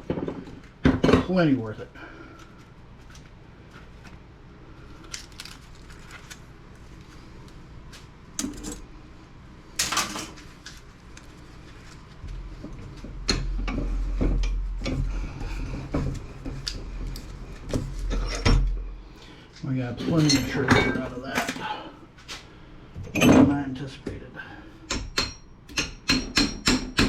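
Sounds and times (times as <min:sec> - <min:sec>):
metal parts clicking and clattering: 0:08.4 - 0:08.8
low hum: 0:11.2 - 0:19.4.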